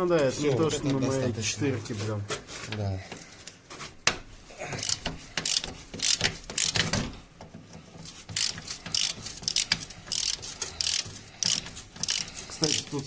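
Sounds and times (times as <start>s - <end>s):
ratchet wrench clicking: 4.8s - 6.9s, 8.3s - 13.0s.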